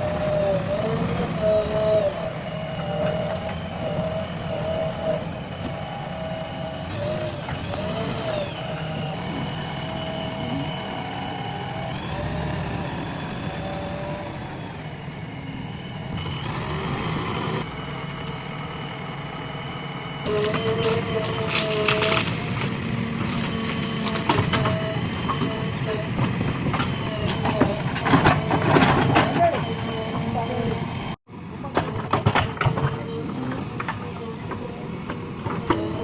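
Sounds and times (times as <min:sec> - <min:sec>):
backhoe diesel engine rumbling: 0:00.0 - 0:36.0
engine whine: 0:00.0 - 0:36.0.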